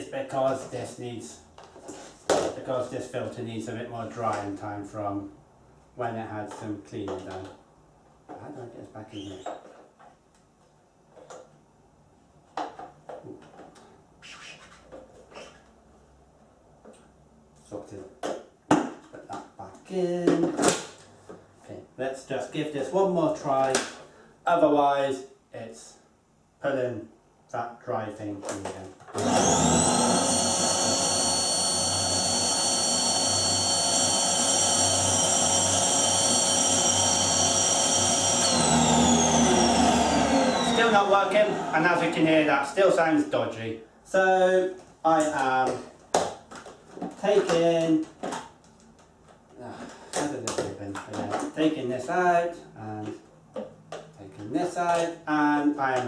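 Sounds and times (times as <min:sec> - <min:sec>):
vacuum cleaner motor whining: 0:29.2 - 0:42.3
plastic parts knocking and clicking: 0:45.2 - 0:49.5, 0:50.1 - 0:51.6.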